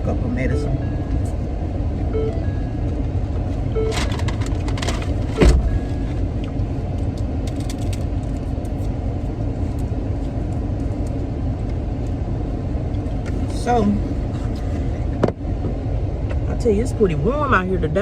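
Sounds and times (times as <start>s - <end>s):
idling car engine rumble: 0.0s - 18.0s
loud thump: 5.4s - 5.8s.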